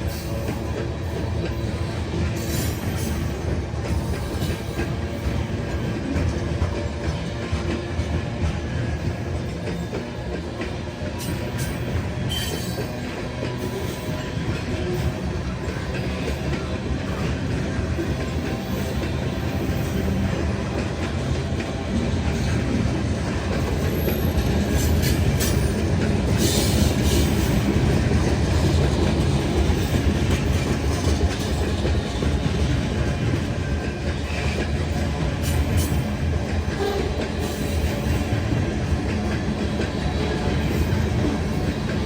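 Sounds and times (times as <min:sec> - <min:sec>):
freight train rumbling past: 0:00.0 - 0:42.0
metallic squeals and clanks: 0:11.2 - 0:15.1.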